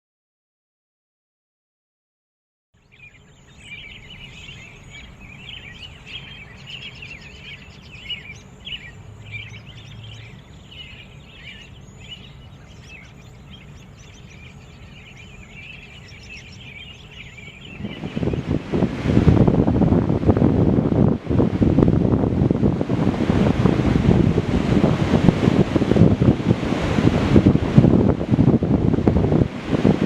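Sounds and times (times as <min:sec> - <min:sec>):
small birds chirping chorus: 0:02.8 - 0:18.8
steady low rumble: 0:04.0 - 0:30.0.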